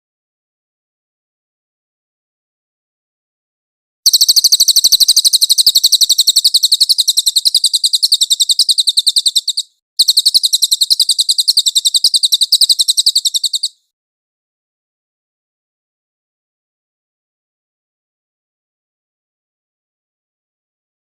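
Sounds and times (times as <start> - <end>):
songbird trilling: 4.1 - 13.8.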